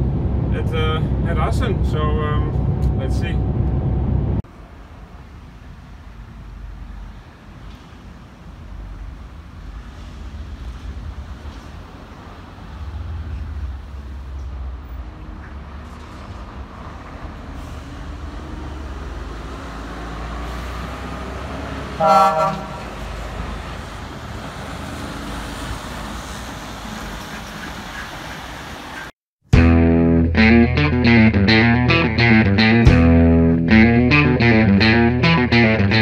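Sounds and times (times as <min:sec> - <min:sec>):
road rumble: 0:00.0 - 0:36.0
truck engine: 0:00.0 - 0:36.0
vehicle horn toot: 0:22.0 - 0:22.9.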